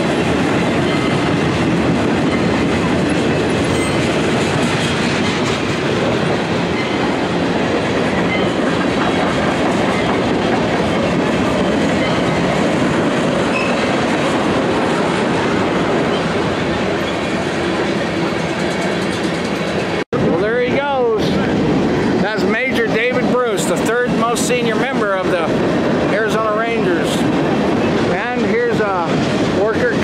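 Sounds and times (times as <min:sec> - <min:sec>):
freight train rolling past: 0:00.0 - 0:30.0.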